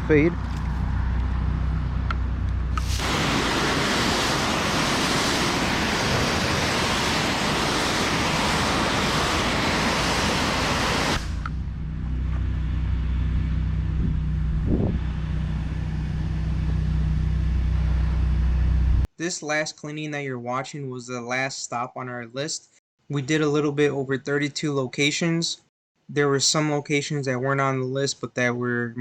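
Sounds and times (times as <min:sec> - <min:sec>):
pressure washer spraying concrete: 0:02.8 - 0:11.4
pressure washer engine running: 0:02.8 - 0:11.5.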